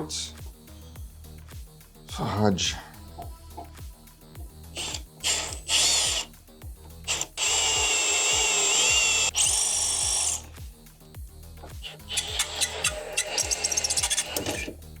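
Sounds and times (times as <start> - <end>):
power drill whining: 4.8 - 6.3, 7.1 - 10.6, 11.8 - 14.8.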